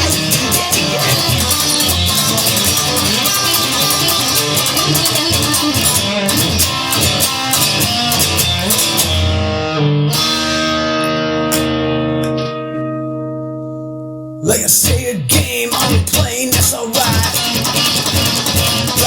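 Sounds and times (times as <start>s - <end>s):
drums: 0.0s - 9.4s, 14.4s - 19.0s
electric guitar playing: 0.0s - 19.0s.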